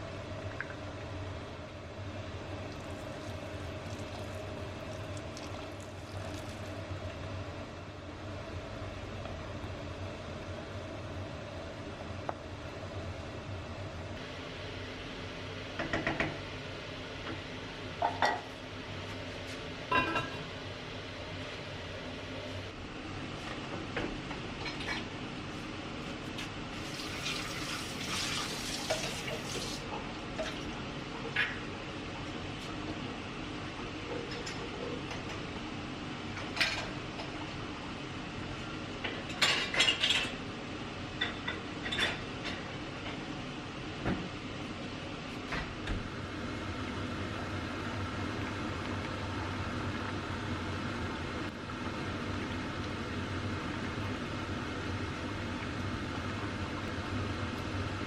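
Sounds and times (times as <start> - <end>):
dishes and cutlery clinking: 19.9 - 20.4.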